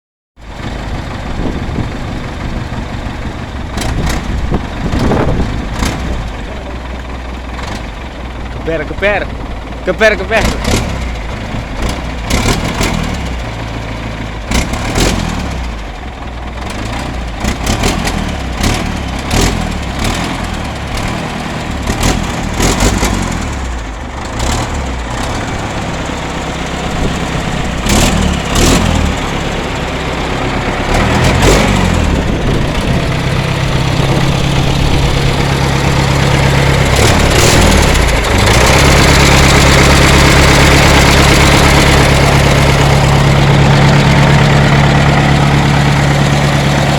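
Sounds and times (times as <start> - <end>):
diesel engine running: 0.4 - 46.9.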